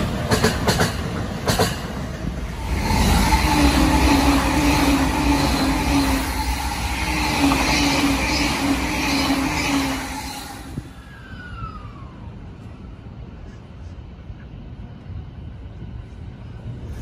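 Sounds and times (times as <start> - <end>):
train passing at speed: 0.0 - 17.0
train whine falling in pitch: 2.4 - 12.8.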